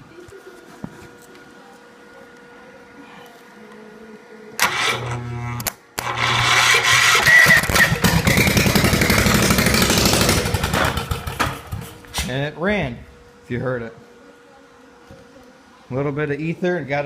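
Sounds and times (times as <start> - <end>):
starter cranking engine: 4.6 - 5.2, 6.0 - 11.9
engine running loudly: 6.0 - 11.9.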